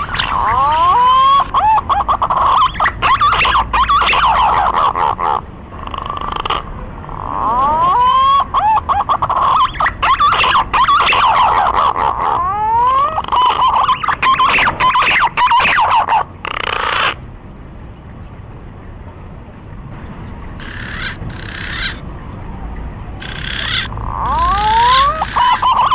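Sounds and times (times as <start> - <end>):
whistled bird lure calls: 20.6 - 22.0, 23.2 - 25.9.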